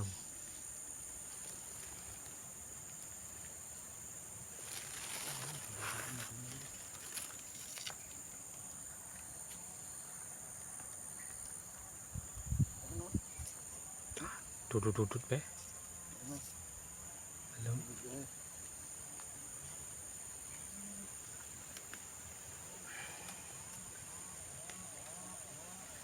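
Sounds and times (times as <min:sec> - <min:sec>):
insects chirring: 0:00.0 - 0:26.0
brief rustle: 0:04.6 - 0:08.2.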